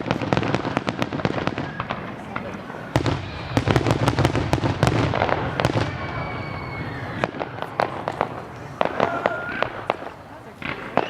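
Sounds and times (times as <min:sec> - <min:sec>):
firework bangs: 0:00.0 - 0:11.0
fireworks popping and crackling: 0:00.0 - 0:11.0
falling firework whistle: 0:03.0 - 0:10.1.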